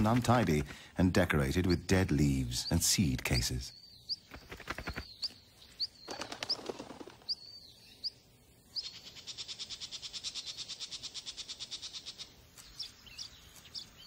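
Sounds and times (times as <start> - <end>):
small birds chirping: 0.0 - 14.0
rapid bird ticking: 2.6 - 8.2, 8.8 - 14.0.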